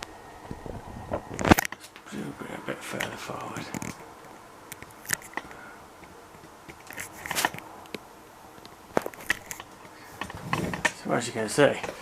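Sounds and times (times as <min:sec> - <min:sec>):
objects being handled: 0:03.0 - 0:07.7, 0:08.6 - 0:11.0.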